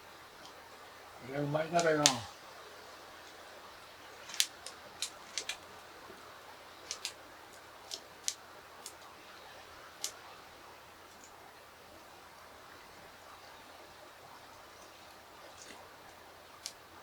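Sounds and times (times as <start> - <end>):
chopsticks and tableware clicking: 4.2 - 5.6, 6.9 - 7.1.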